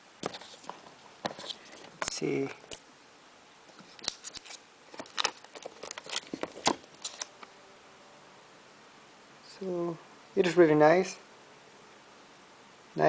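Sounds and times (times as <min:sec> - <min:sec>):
packaging clicks and crinkles: 0:03.9 - 0:07.4.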